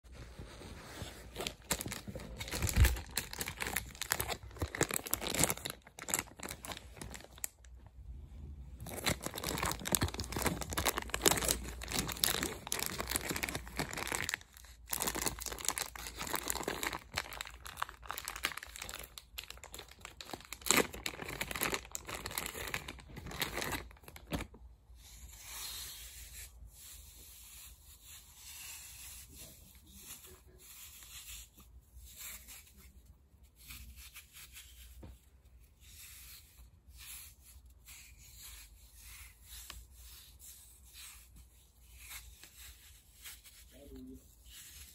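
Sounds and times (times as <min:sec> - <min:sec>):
packaging tearing and crinkling: 0:01.3 - 0:07.7, 0:08.8 - 0:24.6.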